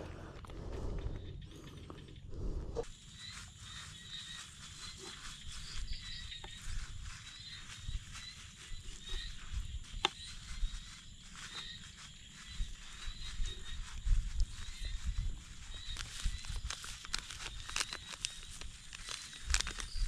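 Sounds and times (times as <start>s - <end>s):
low rumble: 0.0s - 3.0s
high chirping of small creatures: 1.0s - 18.4s.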